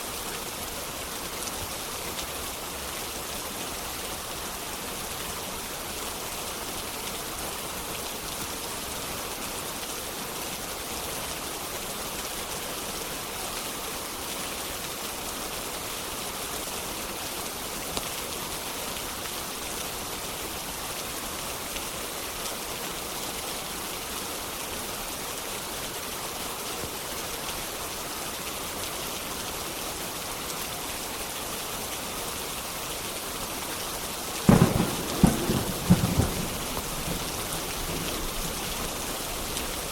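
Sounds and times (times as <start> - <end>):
steady rain: 0.0 - 39.9
loud thunder clap: 34.5 - 36.6.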